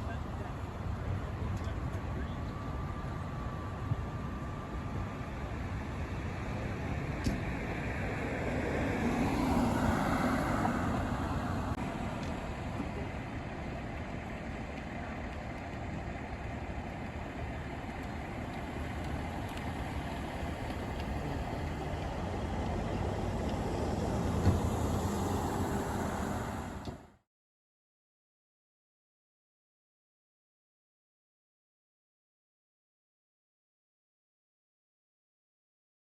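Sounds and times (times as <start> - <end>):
traffic rumble: 0.0 - 27.2
vehicle passing: 7.4 - 12.7, 18.4 - 27.2.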